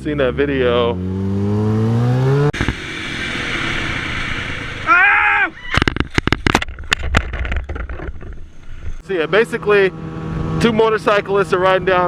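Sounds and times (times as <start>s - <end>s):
motorcycle engine revving: 0.0s - 4.9s, 9.0s - 12.0s
wind noise: 2.5s - 9.0s
crackling thumps on microphone: 5.7s - 9.0s.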